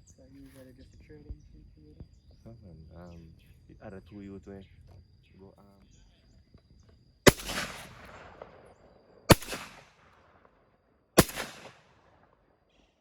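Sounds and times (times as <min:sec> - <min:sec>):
shotgun shots: 0:07.3 - 0:10.6, 0:11.2 - 0:12.4
rolling echo: 0:07.3 - 0:12.6.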